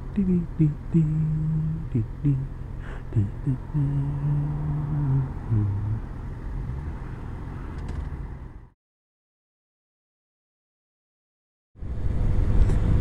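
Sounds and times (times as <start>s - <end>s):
road and wind noise: 0.0s - 8.8s, 11.8s - 13.0s.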